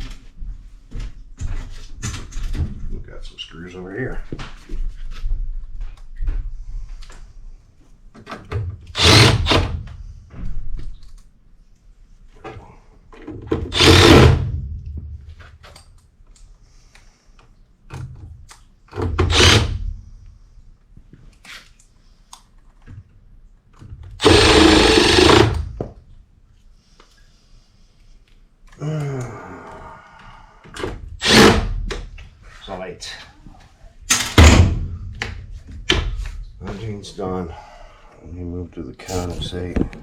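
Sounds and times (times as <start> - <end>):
power driver driving screws into metal: 8.9 - 9.8, 13.7 - 14.5, 19.1 - 19.9, 24.2 - 25.8, 31.2 - 32.0.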